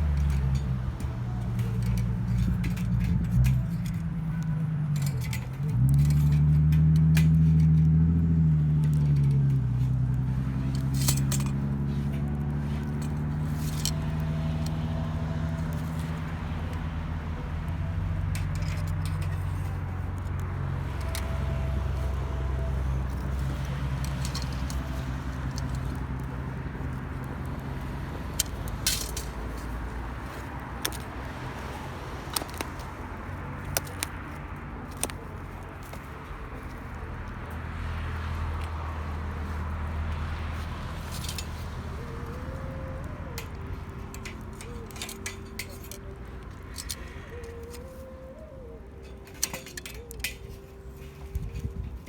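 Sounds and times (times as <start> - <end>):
light metallic clinks: 0.0 - 51.8
engine running steadily: 0.0 - 52.0.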